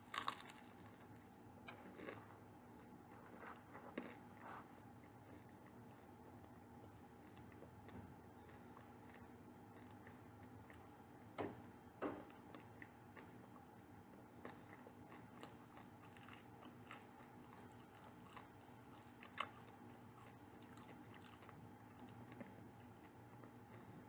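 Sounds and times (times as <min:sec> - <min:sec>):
person biting baked goods: 0:00.1 - 0:01.1
chewing clicks: 0:14.4 - 0:23.8.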